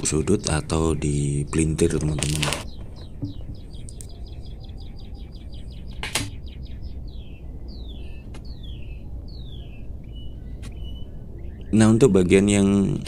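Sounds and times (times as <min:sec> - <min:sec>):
songbird singing: 0:00.0 - 0:13.0
sharp click: 0:05.9 - 0:06.4.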